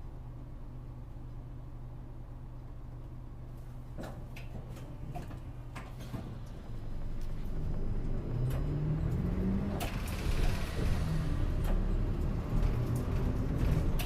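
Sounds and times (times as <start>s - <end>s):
bus diesel engine accelerating: 5.5s - 14.0s.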